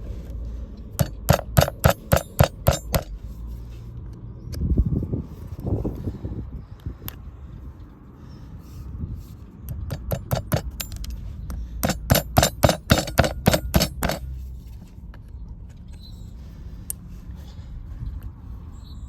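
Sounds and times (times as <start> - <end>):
hammer striking metal: 1.0 - 3.2, 9.7 - 11.2, 11.8 - 14.3.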